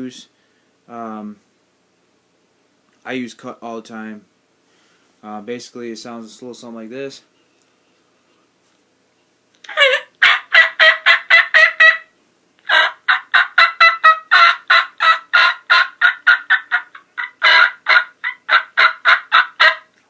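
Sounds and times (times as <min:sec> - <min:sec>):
turkey mouth call notes: 0:09.6 - 0:20.0.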